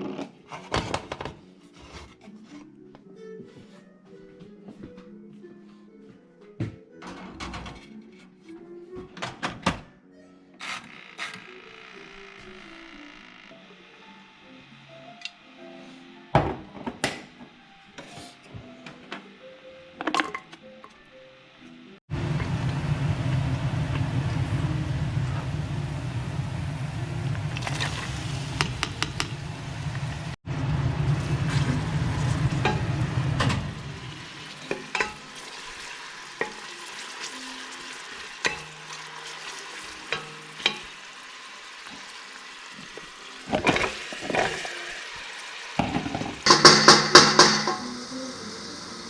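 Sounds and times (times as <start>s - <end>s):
food sizzling in a pan: 22.8s - 30.4s, 31.2s - 49.0s
utensils clinking against pan: 34.6s - 36.8s, 38.4s - 41.0s, 45.8s - 49.0s.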